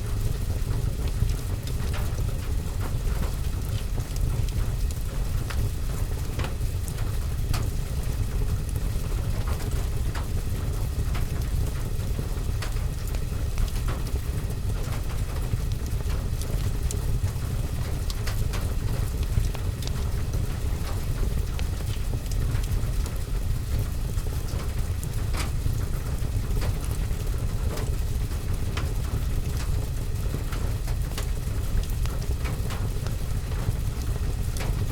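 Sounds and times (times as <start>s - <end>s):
rain on window and roof: 0.1s - 34.9s
wood fire crackling: 0.2s - 34.9s.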